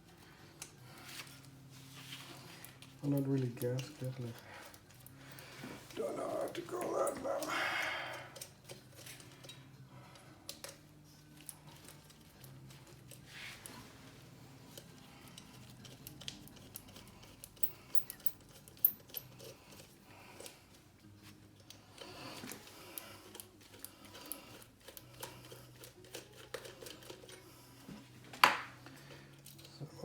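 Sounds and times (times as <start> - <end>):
metal and plastic parts rattling: 2.5 - 7.5, 21.5 - 27.9.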